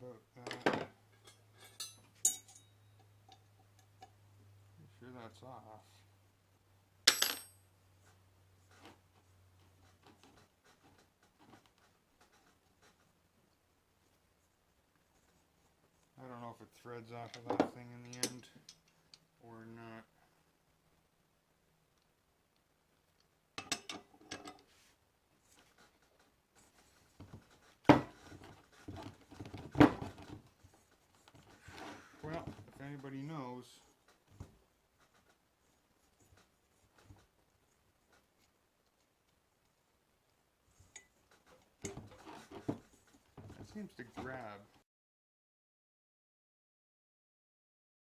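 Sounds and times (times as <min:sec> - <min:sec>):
metal tools clicking and rattling: 0:01.1 - 0:04.1, 0:17.3 - 0:19.0
metallic clank with ring: 0:01.2 - 0:03.4.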